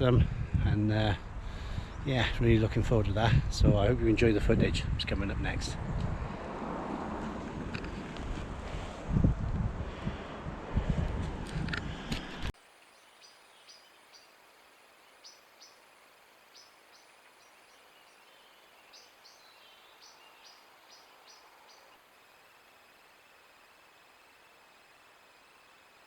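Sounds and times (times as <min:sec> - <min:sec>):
wind buffeting microphone: 0:00.0 - 0:12.5
faint hiss: 0:12.5 - 0:26.0.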